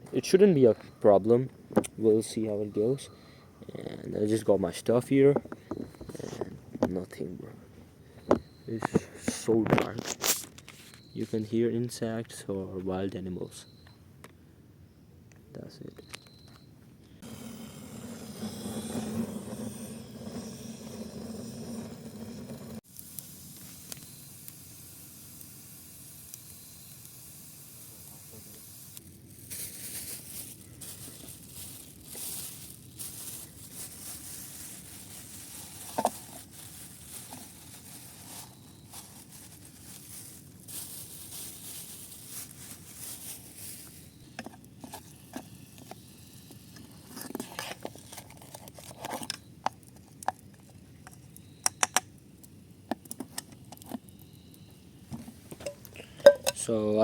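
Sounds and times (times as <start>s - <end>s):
fire crackle: 8.9s - 11.4s, 17.2s - 57.0s
food sizzling in oil: 17.2s - 44.2s.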